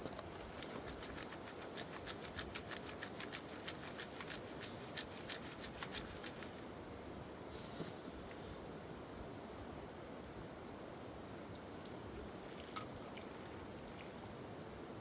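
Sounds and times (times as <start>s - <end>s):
rapid scraping strokes: 0.7s - 6.6s.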